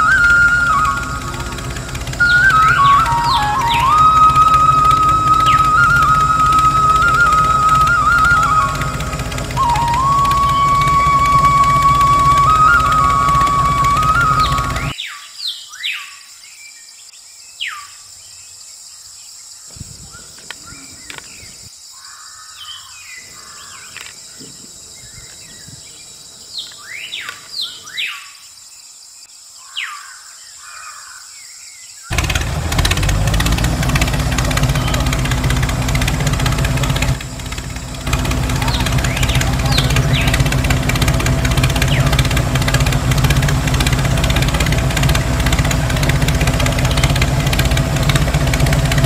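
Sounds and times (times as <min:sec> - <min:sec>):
loud engine rumble: 0:00.0 - 0:15.0, 0:32.1 - 0:49.0
birds chirping: 0:00.0 - 0:16.2, 0:16.9 - 0:49.0
downward-sweeping bird calls: 0:00.0 - 0:18.1, 0:20.0 - 0:28.5, 0:29.6 - 0:49.0.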